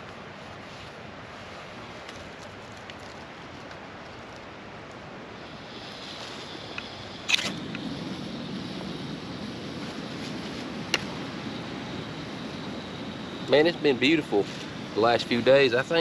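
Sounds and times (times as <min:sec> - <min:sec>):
gas burner rushing: 0:05.4 - 0:16.0
gas hiss: 0:05.4 - 0:16.0.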